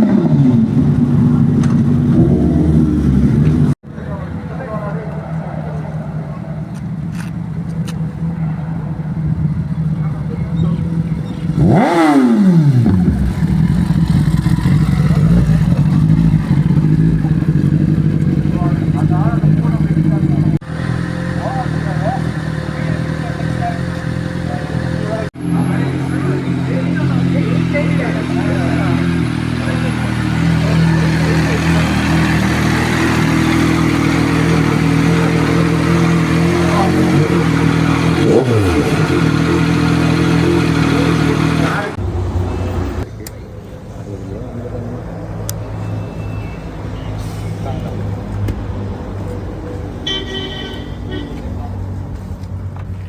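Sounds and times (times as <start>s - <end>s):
vehicle engines humming: 0.0s - 53.0s
passing vehicle exhaust: 5.4s - 43.1s.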